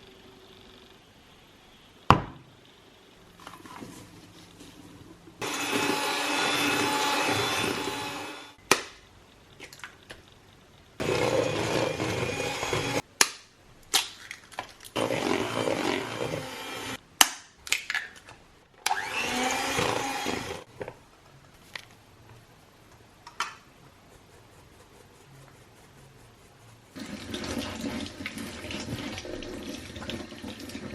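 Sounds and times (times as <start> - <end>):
kitchen appliance motor running: 5.4 - 8.6, 11.0 - 13.0, 15.0 - 17.0, 18.9 - 20.7.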